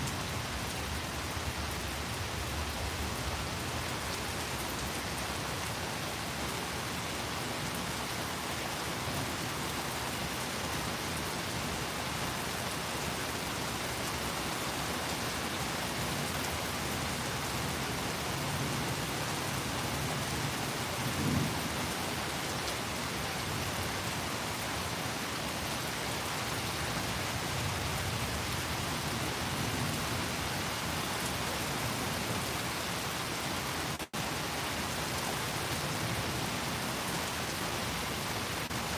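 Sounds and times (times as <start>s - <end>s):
steady rain: 0.0s - 38.9s
thunder rumbling: 21.1s - 21.8s.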